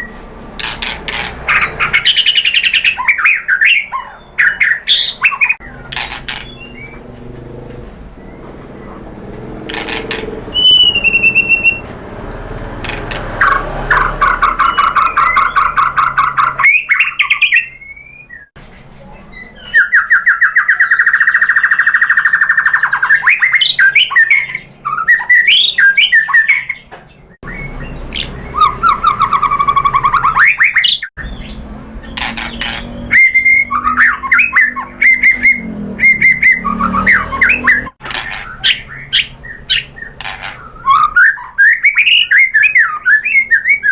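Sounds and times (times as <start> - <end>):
songbird singing trills and whistles: 0.9 - 43.9.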